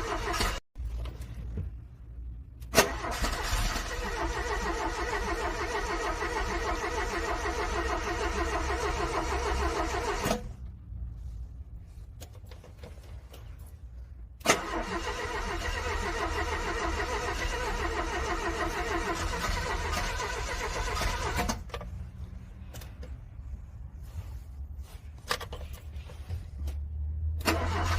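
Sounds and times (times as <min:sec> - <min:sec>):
car starter cranking engine: 0:00.0 - 0:00.6, 0:02.6 - 0:10.6, 0:14.4 - 0:21.8, 0:27.3 - 0:27.9.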